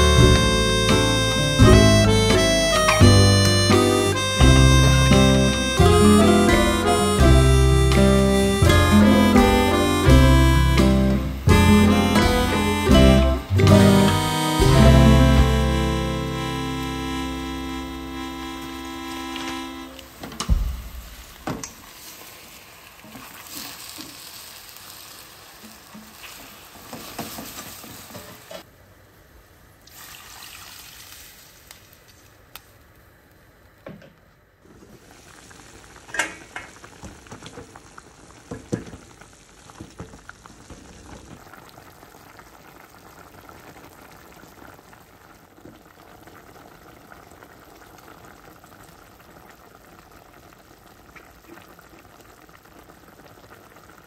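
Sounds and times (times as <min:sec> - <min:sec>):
chicken wings sizzling in pot: 0:00.0 - 0:28.7, 0:29.8 - 0:32.8, 0:34.6 - 0:54.0.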